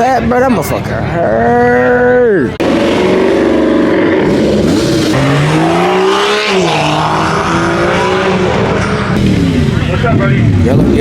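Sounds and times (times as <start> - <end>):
car engine revving: 2.5 - 11.0.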